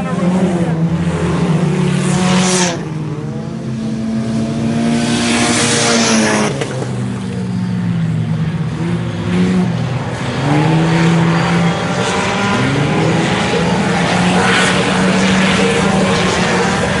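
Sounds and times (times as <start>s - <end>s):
race car engines: 0.0s - 17.0s.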